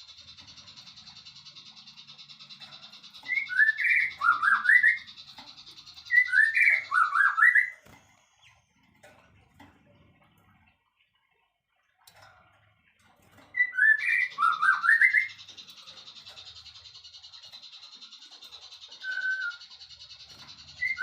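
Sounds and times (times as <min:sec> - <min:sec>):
songbird whistled phrases: 0:03.2 - 0:05.1, 0:06.1 - 0:07.8, 0:13.6 - 0:15.4, 0:19.0 - 0:19.7, 0:20.8 - 0:21.0.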